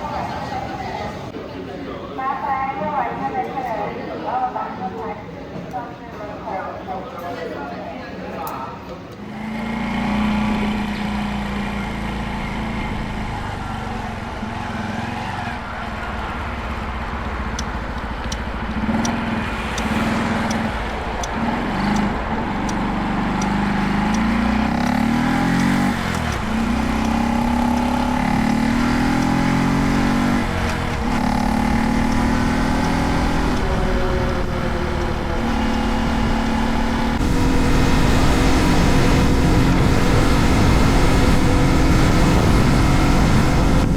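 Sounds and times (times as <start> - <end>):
motorcycle engine shifting gears: 9.1 - 43.9.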